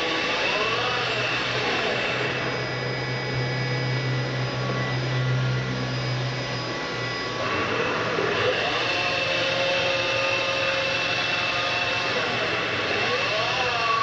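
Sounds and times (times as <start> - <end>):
faint high whines: 0.0 - 14.0
lathe mechanical hum: 0.0 - 14.0.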